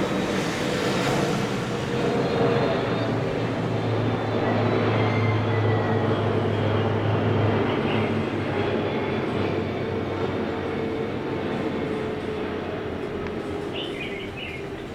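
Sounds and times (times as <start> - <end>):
high turbine whine: 0.0 - 14.9
jet engine roar: 0.0 - 14.9.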